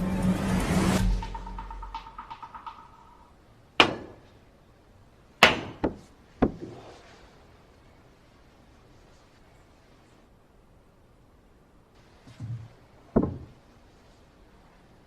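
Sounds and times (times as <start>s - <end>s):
background music: 0.0s - 3.3s
billiard balls clacking: 1.2s - 3.3s, 13.1s - 13.6s.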